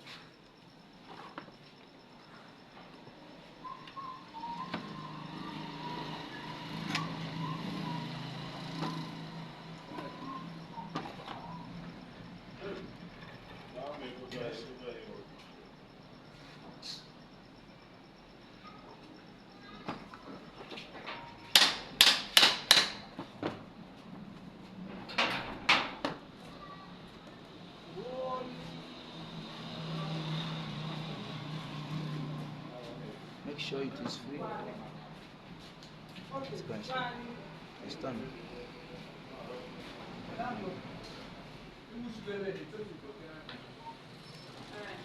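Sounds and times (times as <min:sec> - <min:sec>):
sharp knocks on metal parts: 0:21.5 - 0:23.1.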